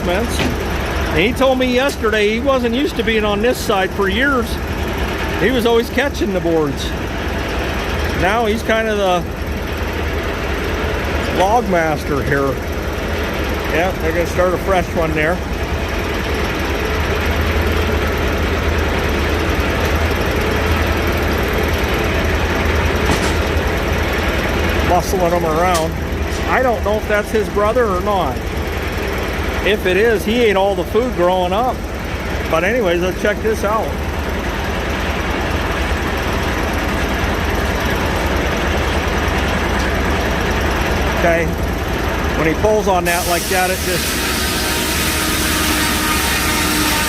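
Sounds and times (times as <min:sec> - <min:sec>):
diesel engine running: 0:00.0 - 0:47.0
saw noise: 0:42.5 - 0:47.0.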